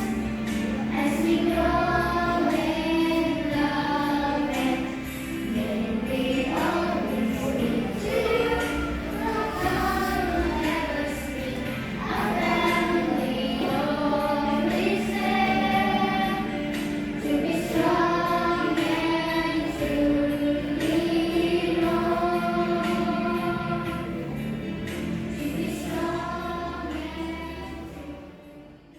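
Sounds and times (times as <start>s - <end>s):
choir singing slow song: 0.0s - 28.9s.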